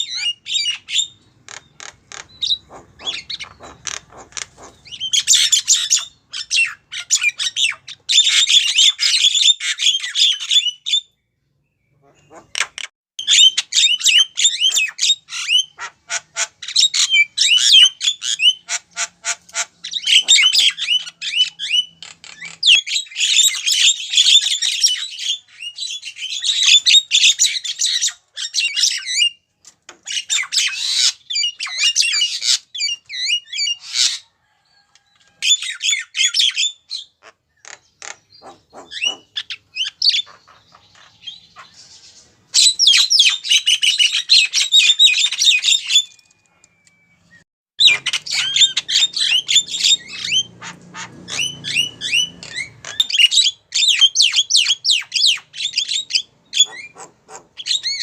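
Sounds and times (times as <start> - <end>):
myna harsh chattering calls: 0.2 - 9.1, 12.0 - 22.5, 37.2 - 41.8, 47.8 - 58.0.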